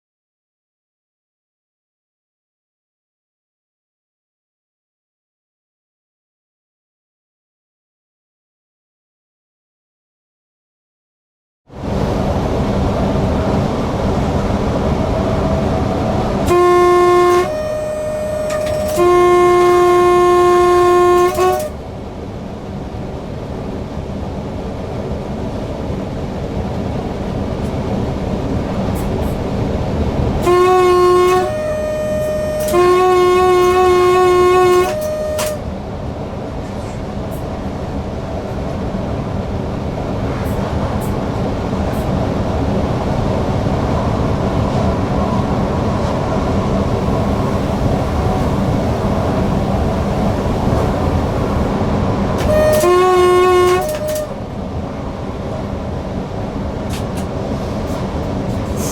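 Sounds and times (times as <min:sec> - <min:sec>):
train rail running noise: 0:11.7 - 0:58.9
train horn blasts: 0:15.3 - 0:21.8, 0:30.4 - 0:35.8, 0:46.8 - 0:51.8, 0:52.4 - 0:54.6.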